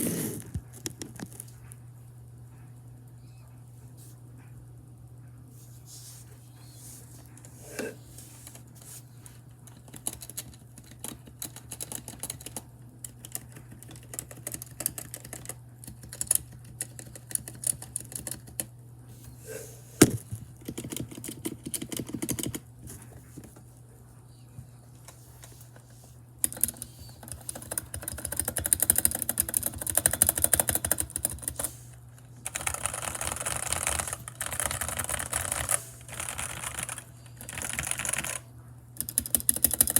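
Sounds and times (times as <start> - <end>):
mechanical keyboard typing: 9.7 - 18.7, 20.6 - 22.6, 26.4 - 31.7, 32.4 - 38.4, 39.0 - 39.9.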